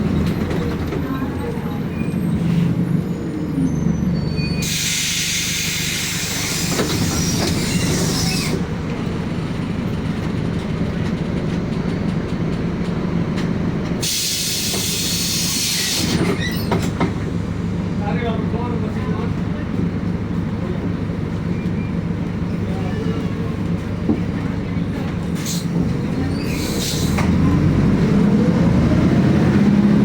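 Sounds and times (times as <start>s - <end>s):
bus engine humming: 0.0s - 30.0s
compressed air hissing: 4.6s - 8.6s, 14.0s - 16.2s.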